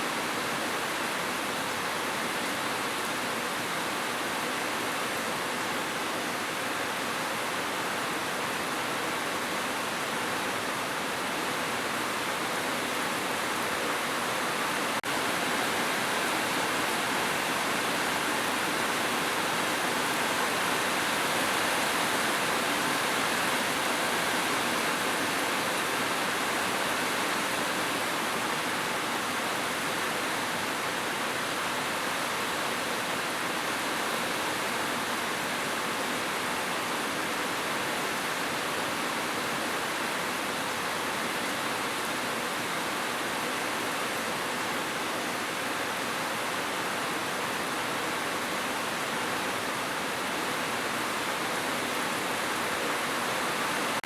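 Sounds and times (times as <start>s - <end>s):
heavy rain on a roof: 0.0s - 54.0s.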